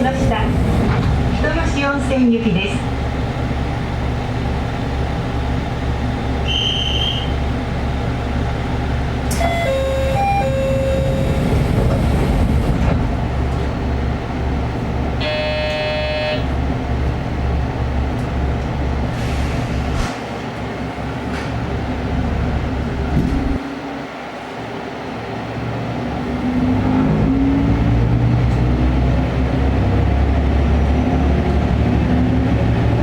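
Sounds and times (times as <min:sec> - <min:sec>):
pitched signal tones: 0:09.3 - 0:11.8
harsh buzzer: 0:15.2 - 0:16.4.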